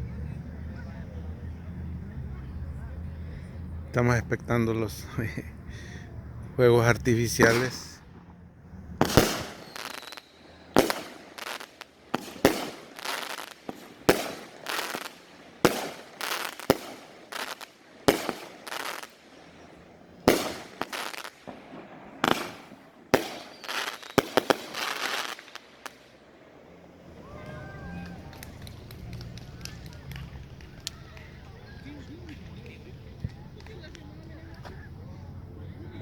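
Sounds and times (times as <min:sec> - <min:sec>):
fireworks bangs: 0:06.6 - 0:34.9.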